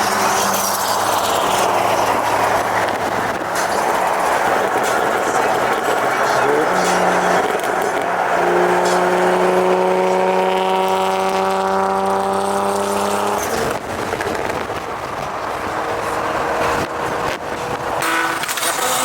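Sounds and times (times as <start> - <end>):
car engine droning: 0.0 - 19.0
road noise: 0.0 - 19.0.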